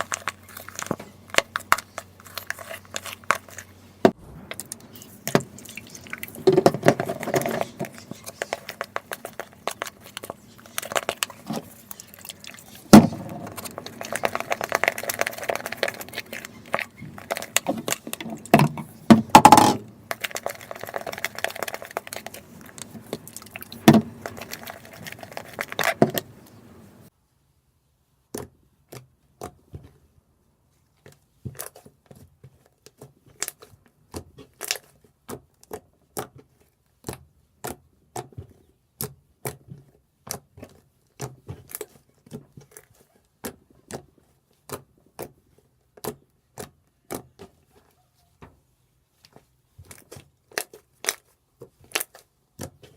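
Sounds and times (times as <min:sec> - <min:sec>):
sticky slime clicks and crackles: 0:05.6 - 0:19.0.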